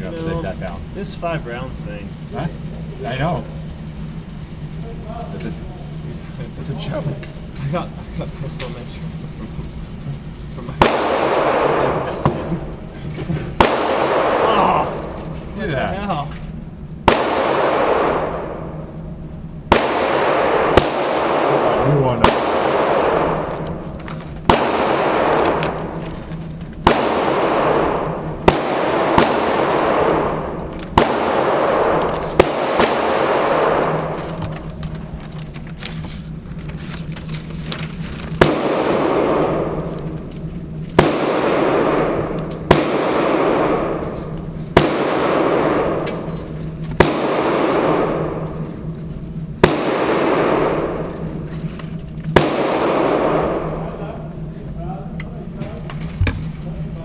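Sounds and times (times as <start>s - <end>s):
handgun shots echoing: 10.8s - 12.6s, 13.6s - 15.2s, 17.1s - 18.9s, 19.7s - 34.8s, 38.4s - 48.8s, 49.6s - 51.5s, 52.3s - 54.0s.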